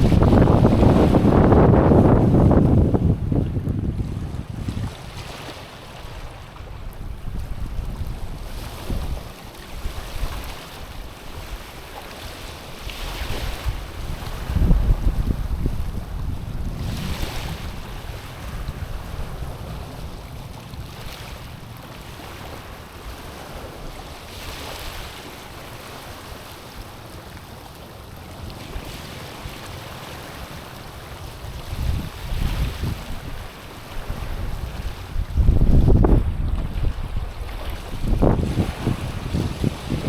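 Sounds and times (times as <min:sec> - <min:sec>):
wind buffeting microphone: 0:00.0 - 0:21.6, 0:30.4 - 0:40.0.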